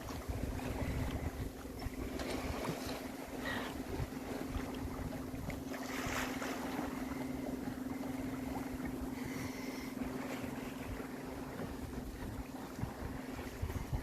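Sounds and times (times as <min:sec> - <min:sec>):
steady low hum: 0:00.0 - 0:14.0
water moving past hull: 0:00.0 - 0:14.0
wind on microphone: 0:00.0 - 0:14.0.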